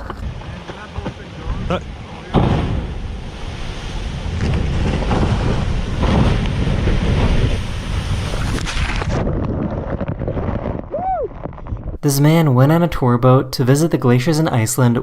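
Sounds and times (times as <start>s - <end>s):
water rushing: 0.0s - 9.2s
wind buffeting microphone: 0.0s - 12.0s.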